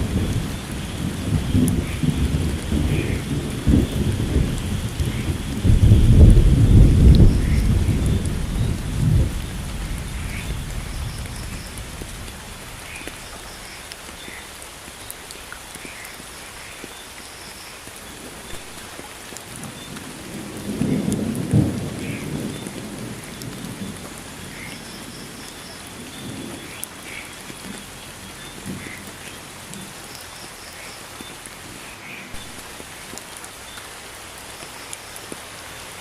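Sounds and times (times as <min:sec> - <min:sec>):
thunder rumbling: 0:00.0 - 0:14.3, 0:19.8 - 0:24.7
steady rain falling: 0:00.0 - 0:36.0.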